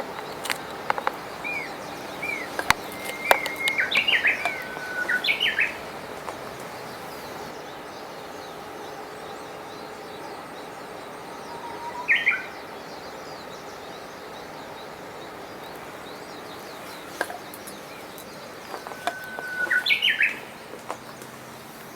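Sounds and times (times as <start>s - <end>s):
mountain stream rushing: 0.0s - 7.9s
songbird whistling phrase: 1.4s - 5.8s, 11.4s - 12.6s, 18.7s - 20.5s.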